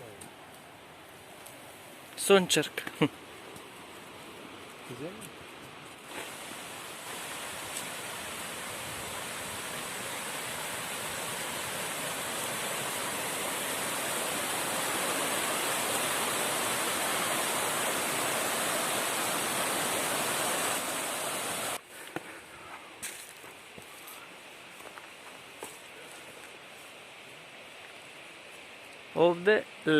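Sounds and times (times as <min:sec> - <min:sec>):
mountain stream rushing: 0:00.7 - 0:21.8
footsteps in dry leaves: 0:22.7 - 0:27.0.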